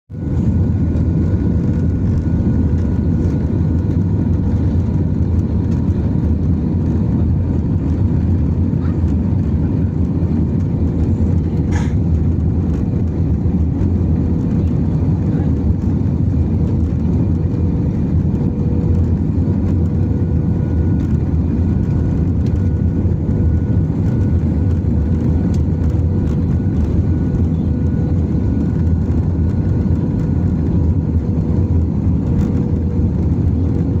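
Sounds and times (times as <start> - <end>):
aircraft cabin rumble: 0.1 - 34.0.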